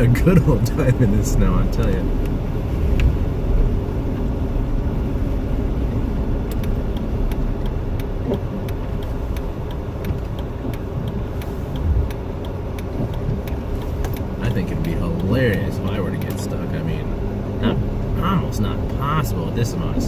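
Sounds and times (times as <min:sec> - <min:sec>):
car driving through deep snow: 0:00.0 - 0:20.0
faint ticks: 0:05.9 - 0:16.4.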